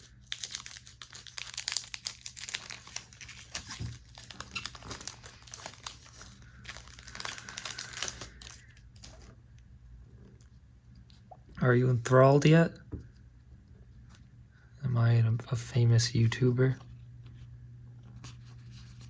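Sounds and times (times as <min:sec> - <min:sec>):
wrapper crinkling and tearing: 0:00.0 - 0:09.3.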